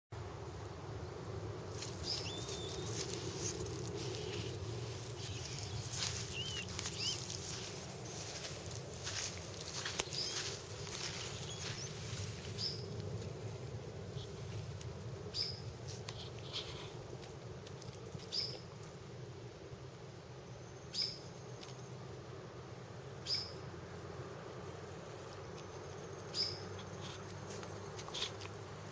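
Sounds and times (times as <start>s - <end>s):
low background noise: 0.2s - 28.9s
steady low hum: 0.2s - 28.9s
small bird chirps: 1.8s - 8.4s, 9.1s - 12.9s, 15.3s - 16.9s, 18.2s - 18.7s, 20.8s - 21.8s, 23.2s - 23.6s, 26.2s - 27.2s.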